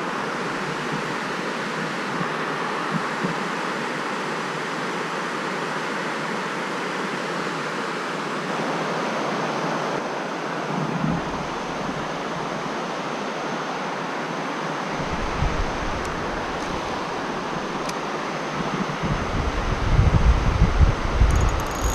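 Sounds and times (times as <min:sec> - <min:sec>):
stream water rushing: 0:08.1 - 0:19.0
wind buffeting microphone: 0:14.9 - 0:17.9, 0:18.5 - 0:21.9.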